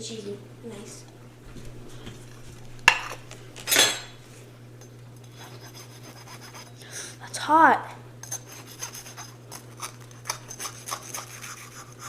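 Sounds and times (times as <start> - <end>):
utensil clinking on plate: 2.9 - 4.2.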